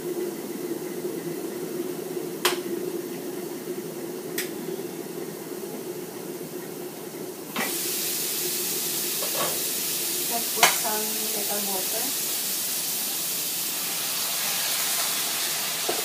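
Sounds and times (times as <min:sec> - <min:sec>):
low steady hum: 0:00.0 - 0:12.3
sizzling hiss of frying: 0:07.5 - 0:16.0
vegetables steaming with soft hiss: 0:07.5 - 0:16.0.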